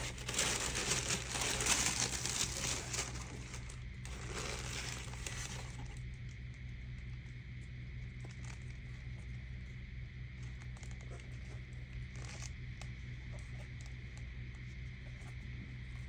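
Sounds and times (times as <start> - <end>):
packaging rustling and clicking: 0.0 - 5.9
low hum: 0.0 - 16.0.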